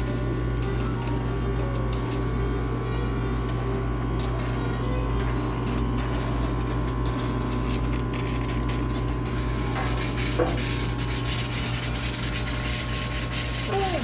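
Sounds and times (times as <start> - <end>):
steam cleaner humming: 0.0 - 14.0
steam hissing from nozzle: 9.3 - 14.0.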